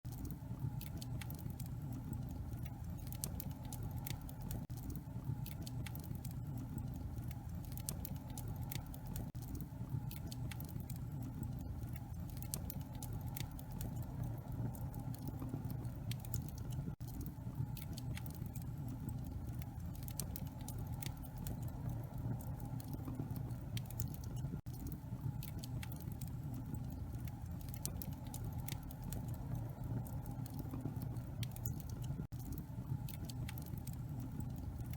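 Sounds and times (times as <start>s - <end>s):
wood fire crackling and popping: 0.1s - 34.9s.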